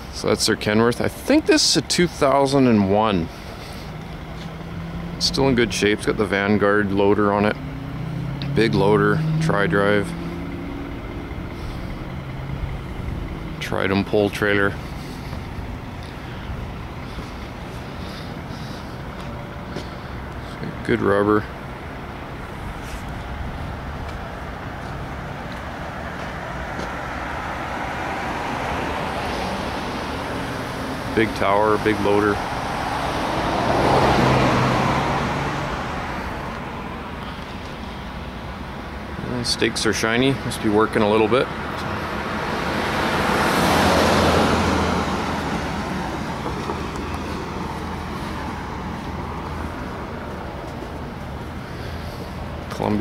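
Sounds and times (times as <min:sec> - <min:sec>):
steady low hum: 0:00.0 - 0:32.8
vehicle and road rumble: 0:00.0 - 0:53.0.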